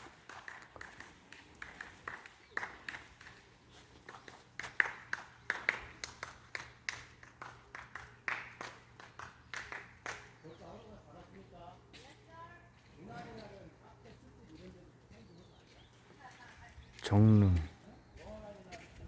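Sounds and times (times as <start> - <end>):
footsteps on a path: 0.0 - 5.5, 10.5 - 19.0.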